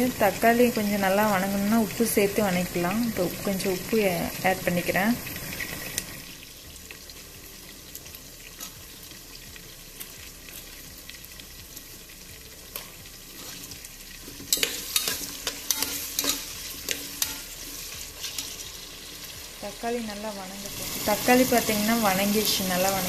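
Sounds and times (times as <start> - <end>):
onions sizzling in oil: 0.0 - 23.0
metal spatula scraping a pot: 13.4 - 18.8.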